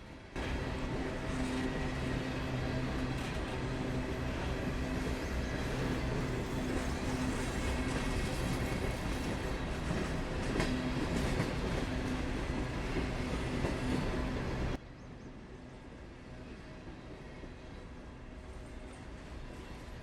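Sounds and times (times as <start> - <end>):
train rolling: 0.0 - 14.8
diesel locomotive engine drone: 0.0 - 20.0.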